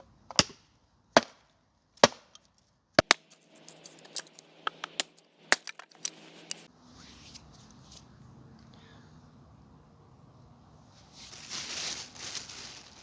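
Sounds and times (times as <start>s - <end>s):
small cracks and snaps: 2.4s - 6.7s
dry wood cracking: 3.0s - 6.7s
faint steady hum: 3.0s - 13.0s.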